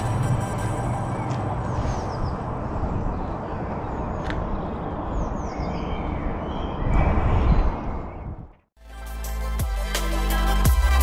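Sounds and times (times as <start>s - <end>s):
rushing outdoor air: 0.0s - 8.7s
small birds chirping: 1.2s - 8.6s.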